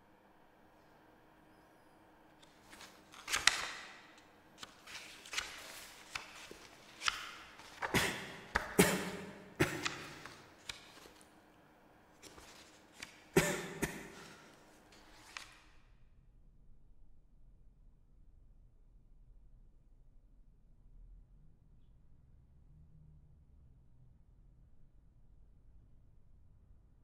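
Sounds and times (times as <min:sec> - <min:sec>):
book pages rustling: 0:02.4 - 0:11.4, 0:12.2 - 0:15.7.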